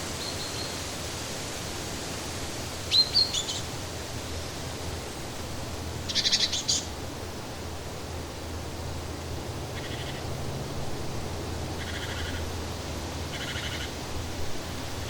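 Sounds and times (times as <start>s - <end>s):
outdoor background hiss: 0.0s - 15.0s
songbird calls: 0.1s - 0.8s, 2.9s - 3.7s, 6.1s - 6.9s, 9.8s - 10.3s, 11.8s - 12.5s, 13.3s - 14.0s.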